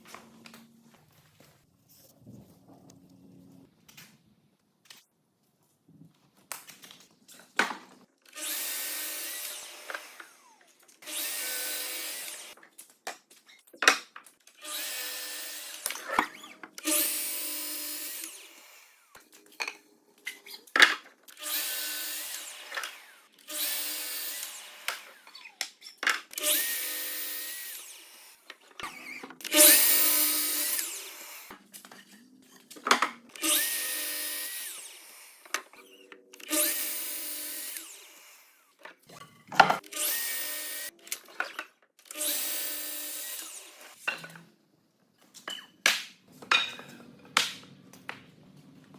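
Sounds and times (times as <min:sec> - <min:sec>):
power saw cutting wood: 0:08.3 - 0:12.6, 0:14.6 - 0:19.2, 0:21.4 - 0:25.6, 0:26.3 - 0:31.5, 0:33.3 - 0:38.8, 0:39.5 - 0:44.0
knocks and clicks of wood handling: 0:39.5 - 0:39.8.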